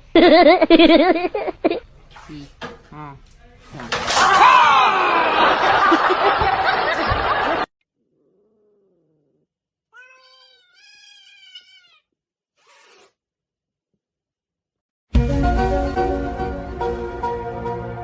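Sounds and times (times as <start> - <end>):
cat meowing: 8.2 - 12.1.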